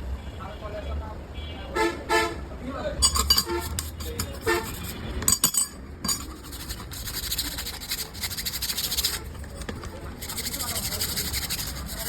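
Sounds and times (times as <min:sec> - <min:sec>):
rasping strokes: 0:03.0 - 0:12.0.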